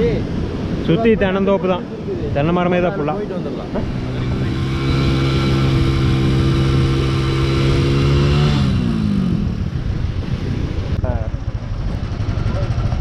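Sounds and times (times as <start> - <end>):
motorcycle engine running: 3.8 - 13.0.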